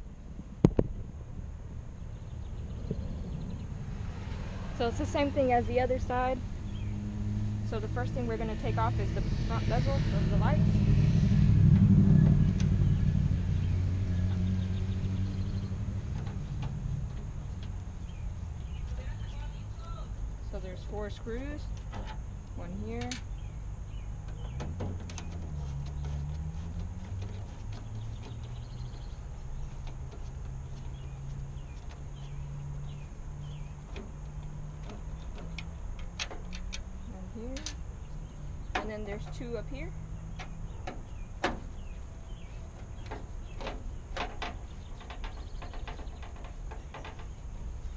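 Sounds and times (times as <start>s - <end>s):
steady low hum: 0.0s - 47.9s
vehicle engine rumbling: 0.0s - 47.9s
bird chirps: 22.8s - 34.0s.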